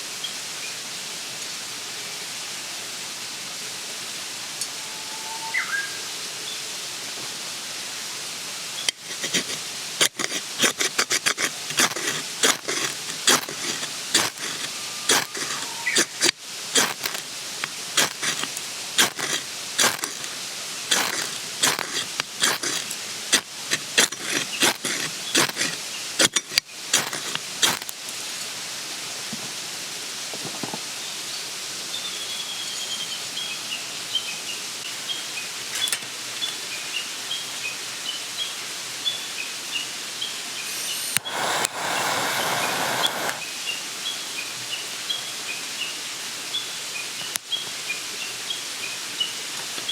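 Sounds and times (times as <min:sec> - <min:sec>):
steady background hiss: 0:00.0 - 0:49.9
small bird chirping: 0:14.4 - 0:17.2.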